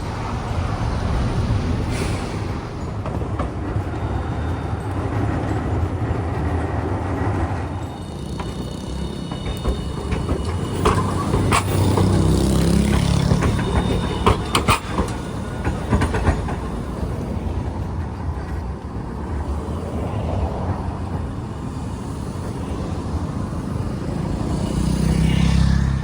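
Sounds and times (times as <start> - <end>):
street traffic: 0.0 - 26.0
streetcar rumbling past: 0.0 - 26.0
wheels clicking on rails: 0.0 - 26.0.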